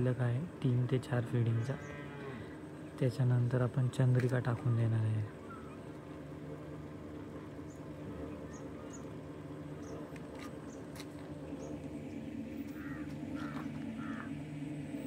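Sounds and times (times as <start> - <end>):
steady low hum: 0.0 - 15.0
bird calling: 4.6 - 6.0, 7.6 - 10.9, 11.5 - 14.7.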